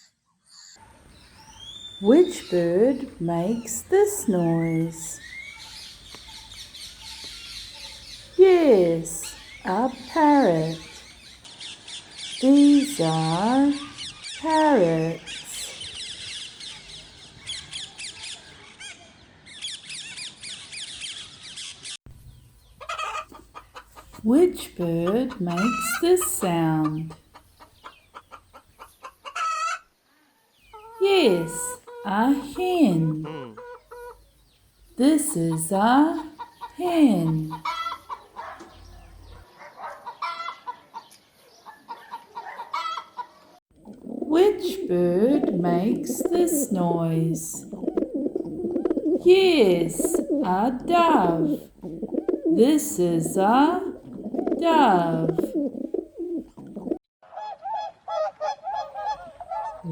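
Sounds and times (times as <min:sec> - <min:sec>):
hen clucking: 0:22.8 - 0:29.8, 0:30.7 - 0:34.2, 0:35.3 - 0:38.8, 0:41.9 - 0:57.0.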